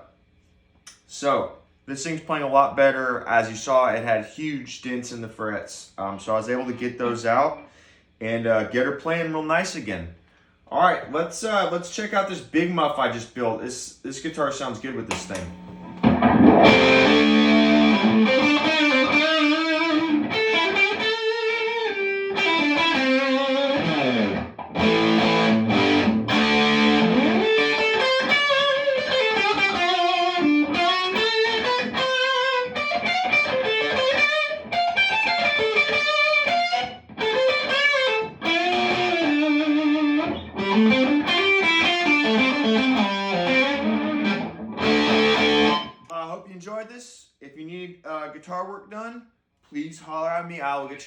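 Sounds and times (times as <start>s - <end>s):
distorted electric guitar lead: 15.3s - 46.0s.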